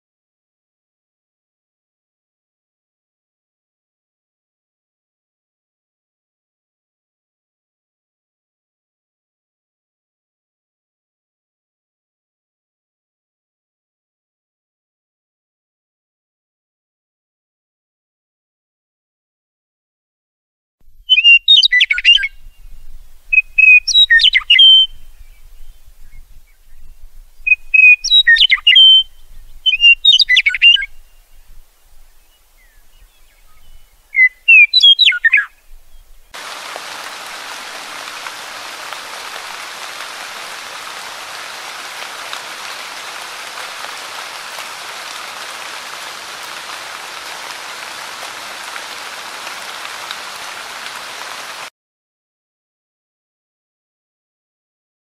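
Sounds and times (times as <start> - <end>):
songbird chirping: 21.1 - 51.7
rushing water hiss: 36.3 - 51.7.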